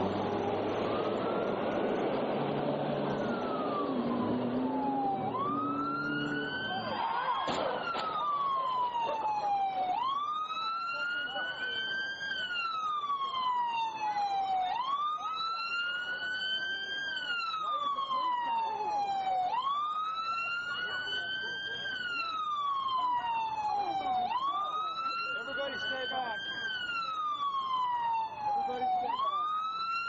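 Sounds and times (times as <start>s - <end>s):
police siren wailing: 0.0s - 30.0s
traffic noise: 0.0s - 30.0s
sharp crack: 7.4s - 8.2s.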